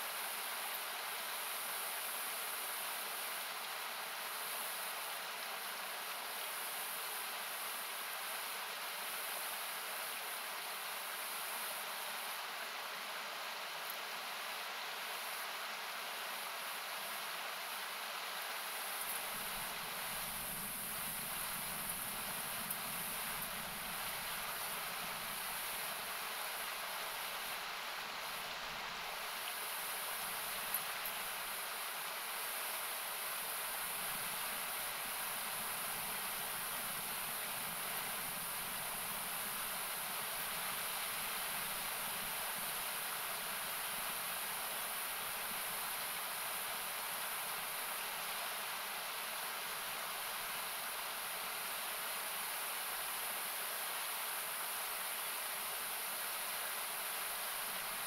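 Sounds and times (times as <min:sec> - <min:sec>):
river water rushing: 0:00.0 - 0:58.0
campfire crackle: 0:18.7 - 0:46.2.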